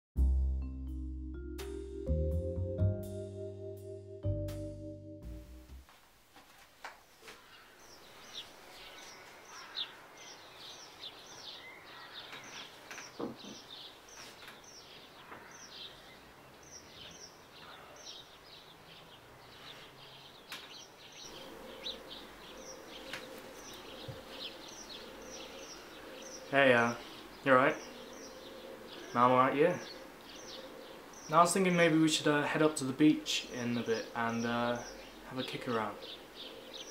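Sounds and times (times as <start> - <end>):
birds chirping: 7.1 - 36.9
light knocks: 12.4 - 13.7.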